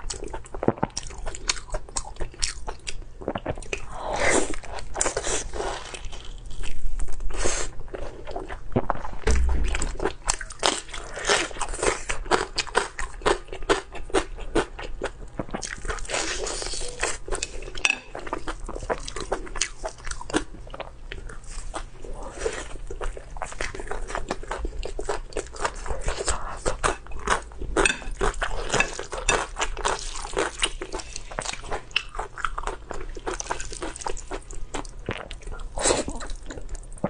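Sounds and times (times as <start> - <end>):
low thump: 9.2 - 10.1.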